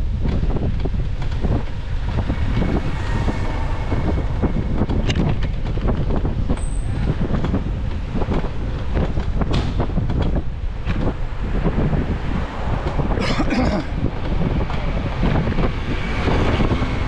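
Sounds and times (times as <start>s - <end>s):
wind buffeting microphone: 0.0s - 17.0s
bicycle clicks and knocks: 4.8s - 12.2s.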